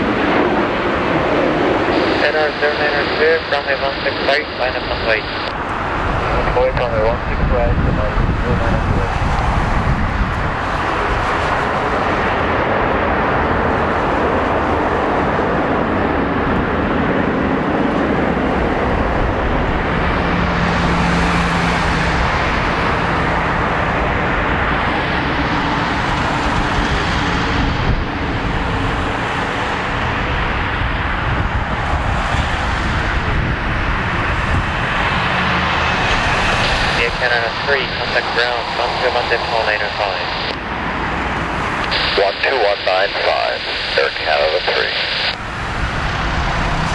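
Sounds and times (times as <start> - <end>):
jet engines rumbling: 0.0 - 46.9.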